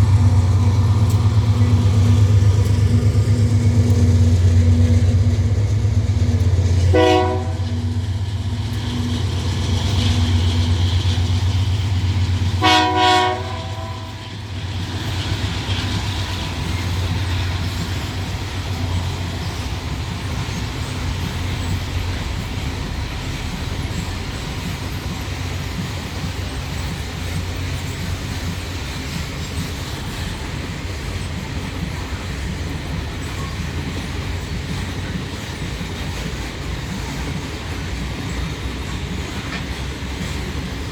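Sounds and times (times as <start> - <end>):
freight cars rumbling on rails: 0.0 - 40.9
locomotive engine drone: 0.0 - 40.9
train horn blast: 6.8 - 8.0, 12.4 - 14.6.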